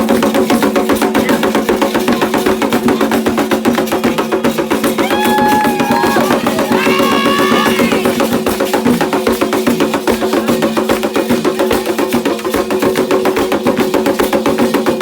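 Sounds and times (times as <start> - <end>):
fast hand drumming: 0.0 - 15.0
voices singing held line: 5.0 - 8.3.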